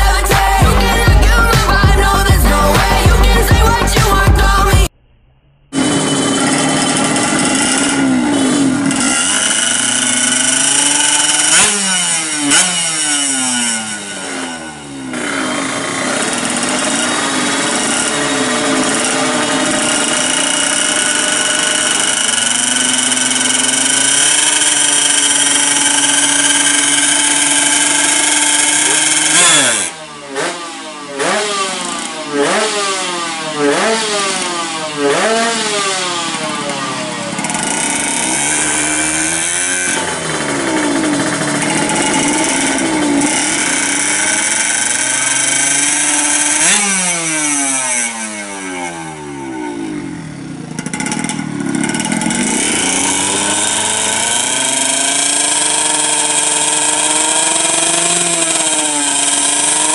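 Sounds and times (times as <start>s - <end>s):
two-stroke engine revving: 0.0s - 5.0s, 5.7s - 59.9s.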